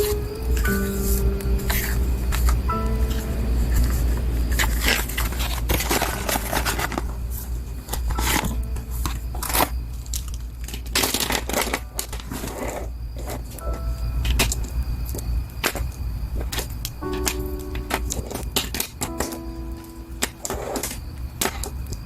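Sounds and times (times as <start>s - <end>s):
packaging crinkling and tearing: 9.4s - 12.7s.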